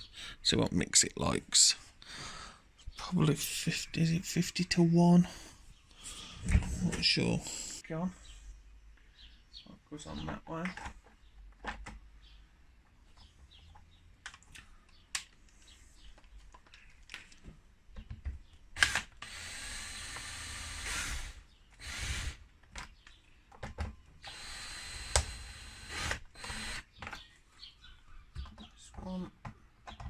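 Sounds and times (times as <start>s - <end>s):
cordless drill driving screws: 18.8s - 22.4s, 24.2s - 26.9s.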